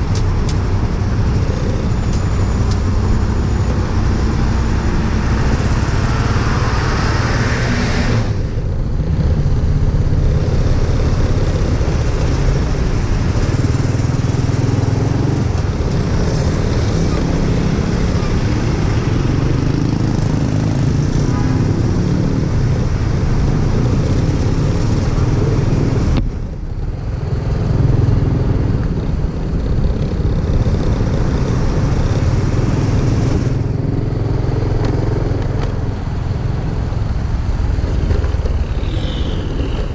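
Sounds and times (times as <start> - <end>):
road noise: 0.0 - 39.9
rushing wind: 0.0 - 39.9
motorcycle engine running: 8.4 - 39.9.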